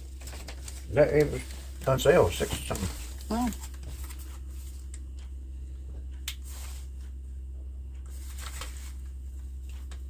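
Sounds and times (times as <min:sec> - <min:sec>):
packaging and paper rustling: 0:00.0 - 0:04.9, 0:08.1 - 0:10.0
steady low hum: 0:00.0 - 0:10.0.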